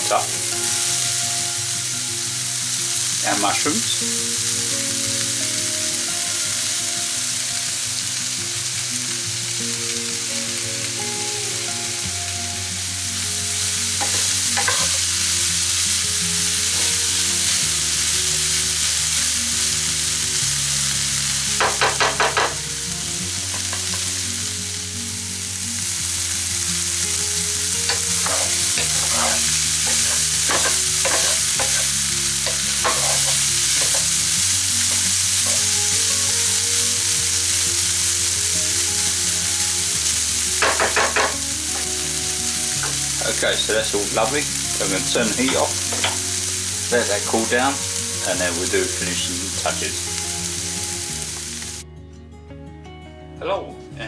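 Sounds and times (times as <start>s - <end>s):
food sizzling in a pan: 0.0s - 51.8s
utensil scraping a pan: 14.0s - 15.4s, 27.8s - 38.2s, 40.1s - 41.9s, 42.7s - 50.0s.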